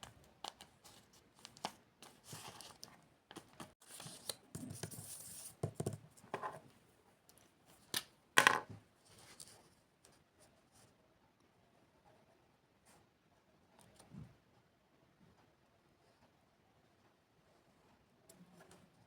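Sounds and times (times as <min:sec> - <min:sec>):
paper rustling and scraping: 0:00.5 - 0:05.6.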